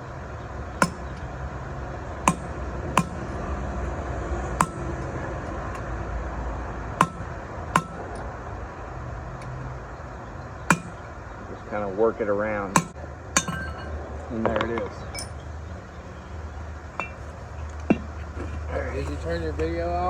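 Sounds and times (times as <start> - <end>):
hammer striking steel punch: 0.8 - 1.2, 2.3 - 3.3, 4.6 - 5.0, 7.0 - 8.2, 10.7 - 11.1, 12.8 - 13.9.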